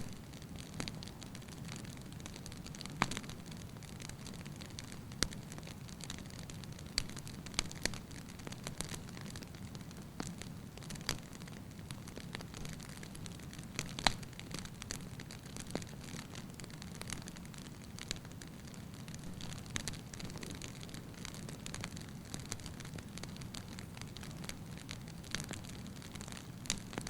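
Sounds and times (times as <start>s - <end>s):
fire crackling and popping: 0.0s - 27.0s
low rumble of flames: 0.0s - 27.0s.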